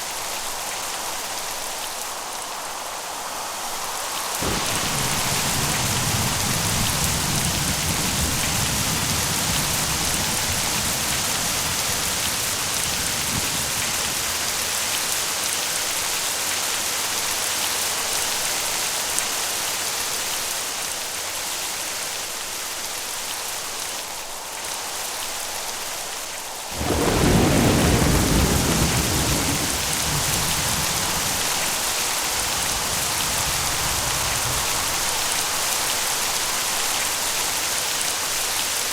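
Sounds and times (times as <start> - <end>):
steady rain: 0.0 - 38.9
loud thunder clap: 4.4 - 14.6, 26.8 - 35.1
low thunder rumble: 4.4 - 15.1, 26.8 - 35.4.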